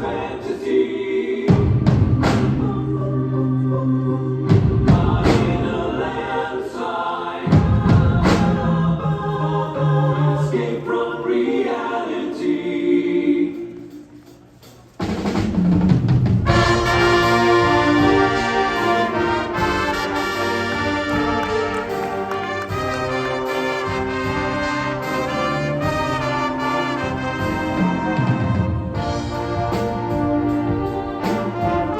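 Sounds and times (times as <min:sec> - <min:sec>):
wind and percussion ensemble: 0:00.0 - 0:03.3, 0:04.0 - 0:06.6, 0:07.4 - 0:09.8, 0:12.8 - 0:31.9
drum hits: 0:04.5 - 0:05.9, 0:15.0 - 0:31.9
brass and woodwinds playing chords: 0:16.4 - 0:31.9.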